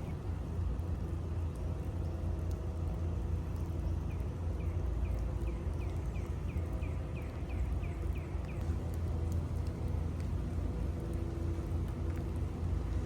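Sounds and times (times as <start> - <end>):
city street rumble: 0.0 - 13.0.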